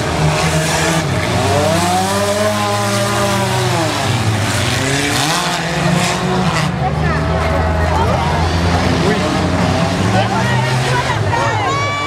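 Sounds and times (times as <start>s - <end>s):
car engine revving: 0.0s - 11.6s
car engines running: 0.0s - 12.0s.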